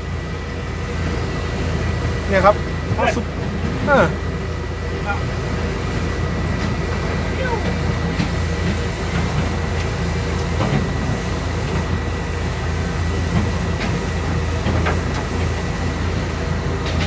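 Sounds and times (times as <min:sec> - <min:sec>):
diesel truck engine rumbling: 0:00.0 - 0:17.0.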